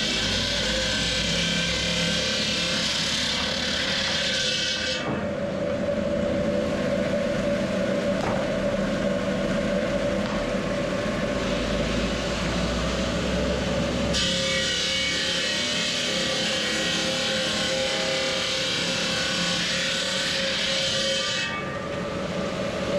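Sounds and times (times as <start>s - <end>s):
noisy machine whir: 0.0s - 22.9s
machine hum: 5.2s - 14.2s.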